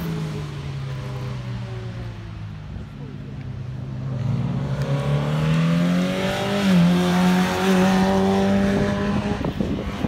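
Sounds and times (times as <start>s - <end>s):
sports car engine revving: 4.0s - 9.5s.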